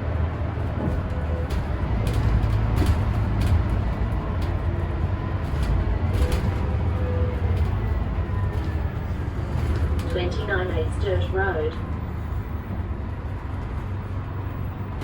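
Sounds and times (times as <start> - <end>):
bus diesel engine rumbling: 0.0 - 15.0
light rattles: 0.8 - 10.2.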